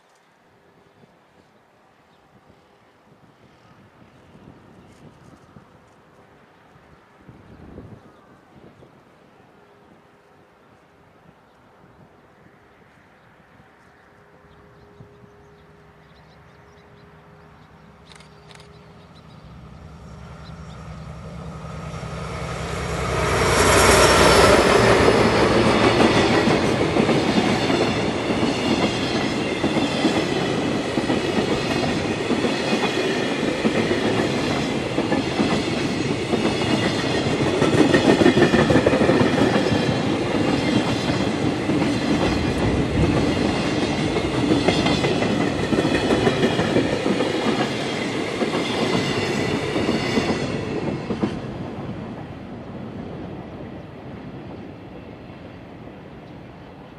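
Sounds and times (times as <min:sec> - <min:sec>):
wheels clickety-clack over rail joints: 0:23.1 - 0:53.6.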